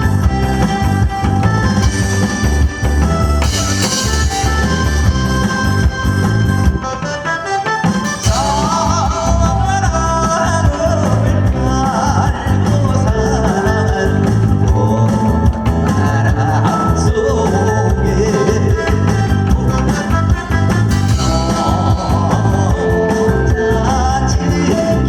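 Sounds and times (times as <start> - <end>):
backing track with drum beat: 0.0 - 25.0
person singing: 8.2 - 25.0.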